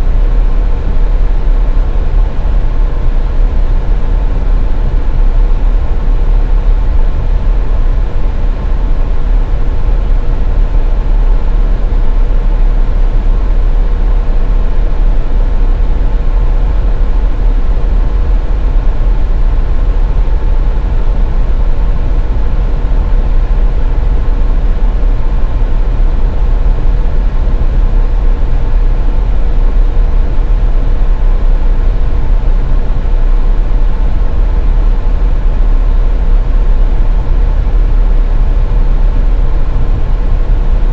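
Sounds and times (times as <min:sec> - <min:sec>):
car tyres and engine rumble: 0:00.0 - 0:40.9
faint constant hum: 0:00.0 - 0:40.9.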